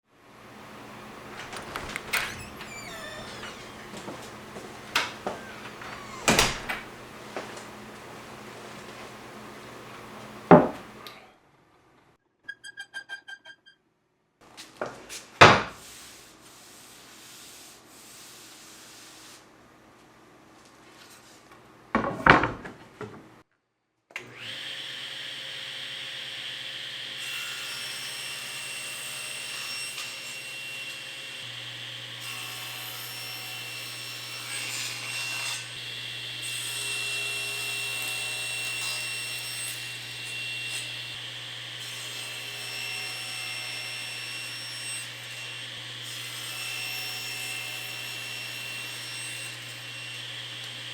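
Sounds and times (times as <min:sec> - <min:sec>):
power tool whining: 0:01.4 - 0:07.0
quick beeps: 0:12.4 - 0:13.8.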